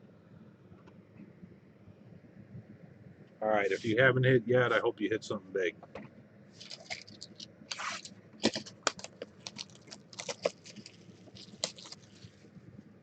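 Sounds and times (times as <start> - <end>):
cards clicking and tapping: 6.6 - 12.2
packaging rustling: 6.6 - 12.5.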